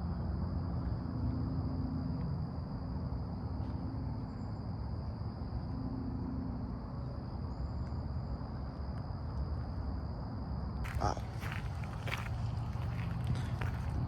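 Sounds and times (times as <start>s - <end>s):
crickets droning: 0.0s - 14.0s
low outdoor rumble: 10.8s - 14.0s.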